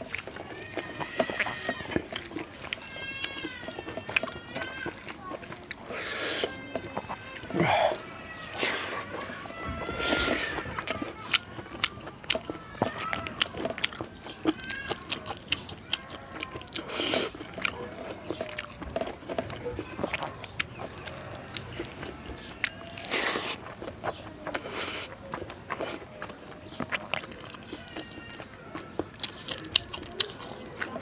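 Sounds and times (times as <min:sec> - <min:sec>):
person chewing and smacking: 0:00.0 - 0:31.0.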